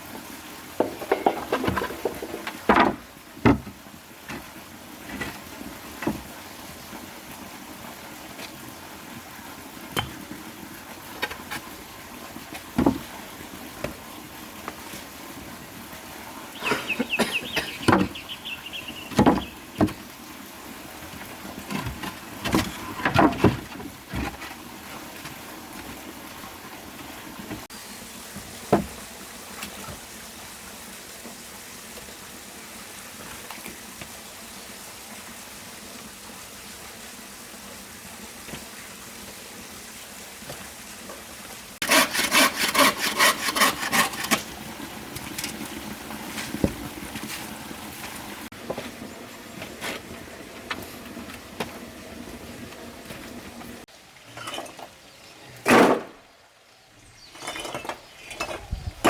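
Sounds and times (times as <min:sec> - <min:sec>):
rapid rhythmic tool strokes: 0:41.8 - 0:44.3.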